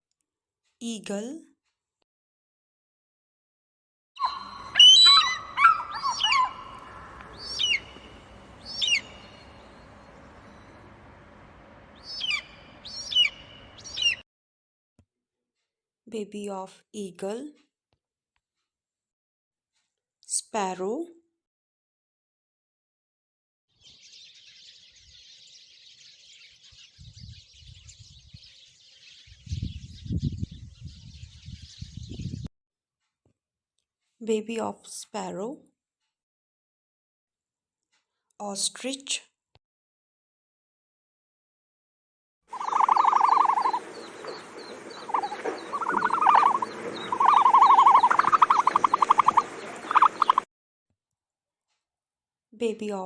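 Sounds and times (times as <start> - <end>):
bird pulsing trills: 4.2 - 10.9, 12.0 - 14.2, 42.5 - 50.4
sparrows chirping: 4.2 - 11.0, 11.9 - 14.2, 23.8 - 32.5, 42.5 - 50.4.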